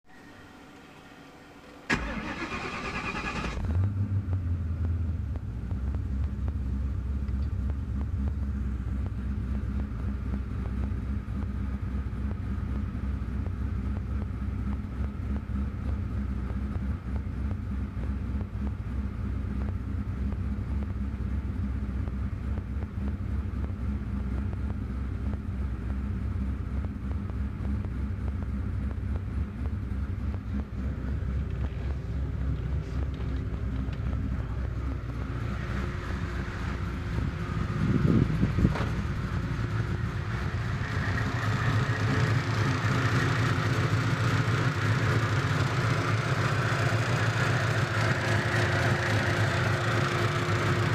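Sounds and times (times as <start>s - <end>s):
car engine idling: 0.4s - 50.9s
starter motor whining: 1.9s - 3.8s.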